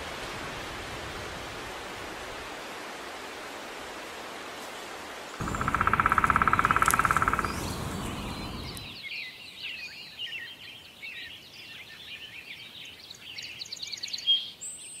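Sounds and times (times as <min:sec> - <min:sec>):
songbirds chirping: 0:05.3 - 0:15.0
bird trill: 0:05.4 - 0:09.0
low rushing noise: 0:05.4 - 0:09.0.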